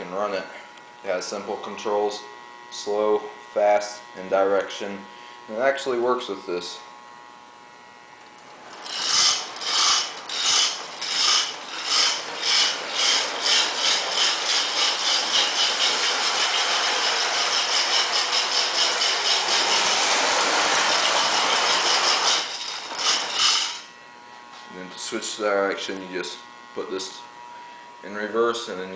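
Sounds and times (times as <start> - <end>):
toy steam locomotive chugging: 8.7 - 23.8.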